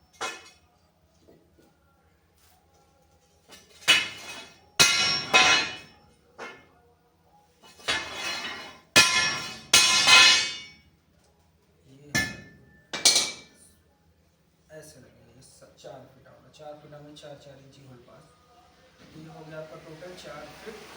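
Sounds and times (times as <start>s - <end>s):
metal strikes on angle iron: 0.1s - 0.6s, 3.7s - 6.7s, 7.7s - 10.8s, 12.2s - 13.6s.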